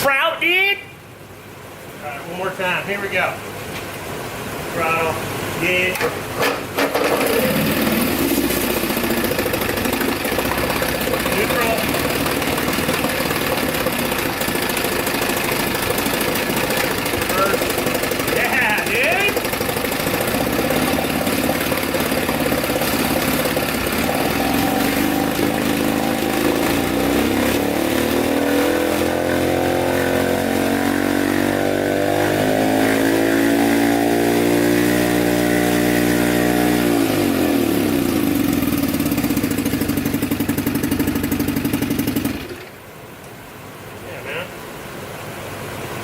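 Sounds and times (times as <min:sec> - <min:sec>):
outboard motor running: 0:06.4 - 0:42.9.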